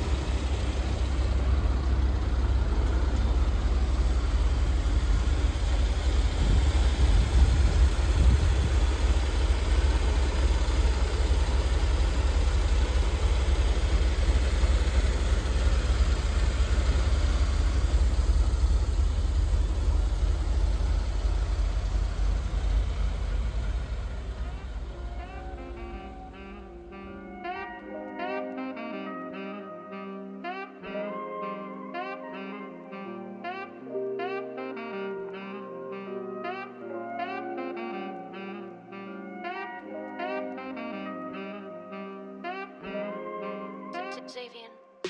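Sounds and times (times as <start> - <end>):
car engine idling: 0.0 - 27.2.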